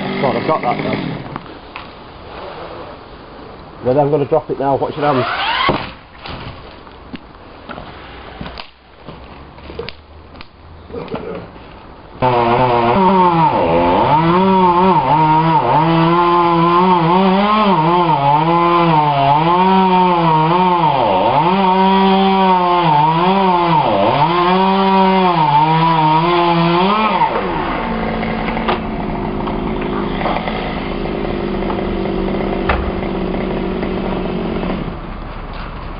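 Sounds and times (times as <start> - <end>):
chainsaw cutting wood: 0.0 - 1.4, 5.0 - 6.0, 12.2 - 35.1.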